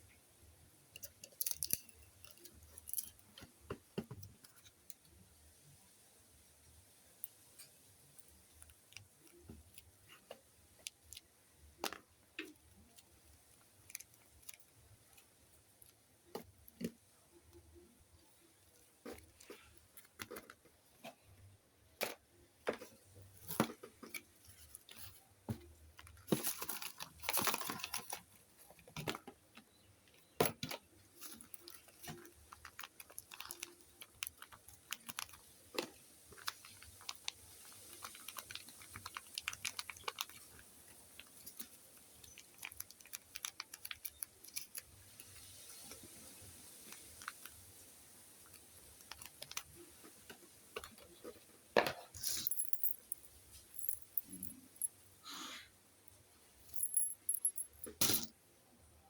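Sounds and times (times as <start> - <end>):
crinkly rustle: 22.8 - 54.9.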